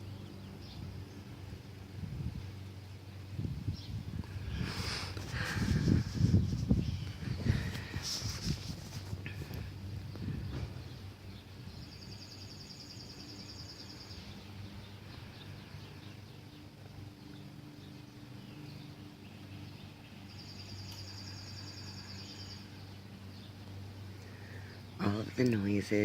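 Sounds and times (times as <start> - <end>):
low background rumble: 0.0 - 26.0
bird chirps: 10.5 - 25.1
songbird trilling: 10.9 - 25.5.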